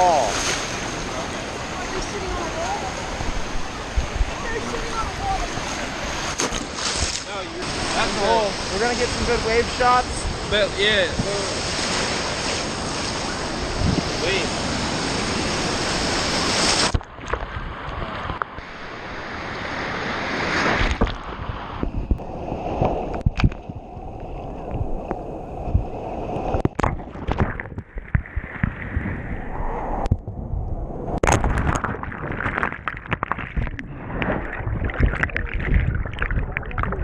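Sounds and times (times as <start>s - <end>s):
water sloshing: 0.0s - 9.4s, 26.6s - 29.2s, 31.2s - 37.0s
ocean waves surging: 0.0s - 17.0s, 17.6s - 27.7s.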